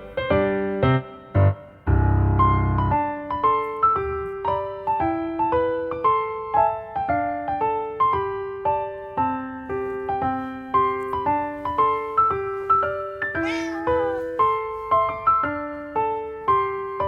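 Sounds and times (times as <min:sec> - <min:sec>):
gentle piano music: 0:00.0 - 0:17.0
cat meow: 0:13.3 - 0:14.3.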